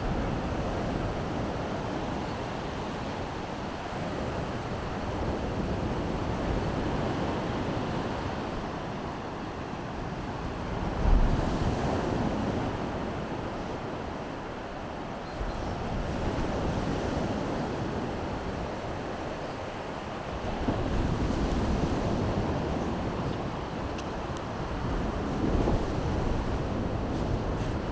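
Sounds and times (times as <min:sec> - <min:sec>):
wind on microphone: 0:15.4 - 0:27.9
surf washing onto beach: 0:15.9 - 0:27.9.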